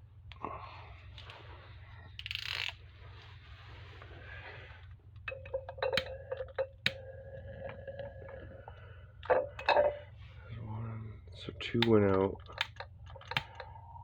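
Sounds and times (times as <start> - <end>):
light metallic clicks and clinks: 9.2 - 10.0.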